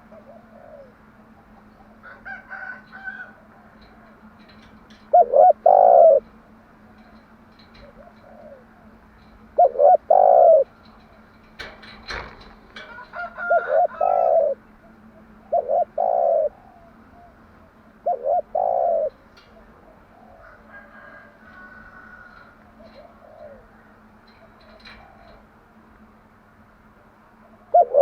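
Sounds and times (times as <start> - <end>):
dove cooing: 0.0 - 10.8, 11.5 - 25.6, 27.4 - 28.0.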